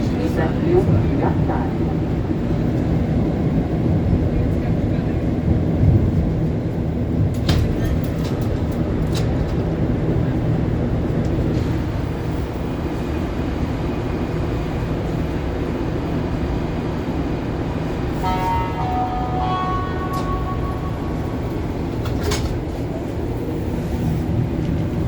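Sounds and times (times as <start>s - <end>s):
metro train rumble: 0.0s - 25.0s
steady electrical tones: 18.2s - 22.3s.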